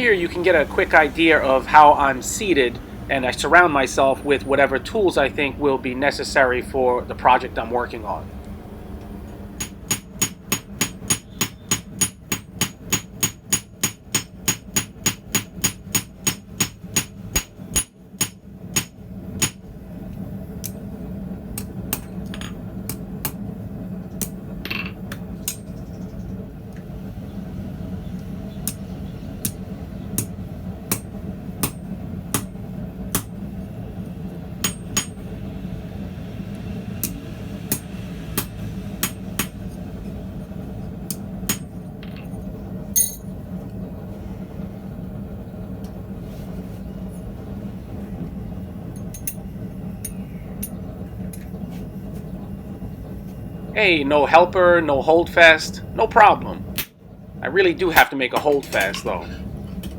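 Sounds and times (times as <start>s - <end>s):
low hum: 0.0s - 59.9s
hammer striking steel rod on anvil: 9.6s - 19.6s, 30.9s - 33.3s, 34.6s - 35.2s, 37.0s - 39.6s, 43.0s - 43.2s.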